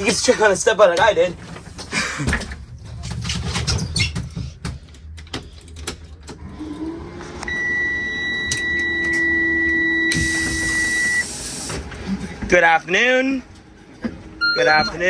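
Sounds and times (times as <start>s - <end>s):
people climbing aboard bus: 0.0s - 7.4s
dashboard warning buzzer: 7.5s - 11.3s, 14.4s - 15.0s.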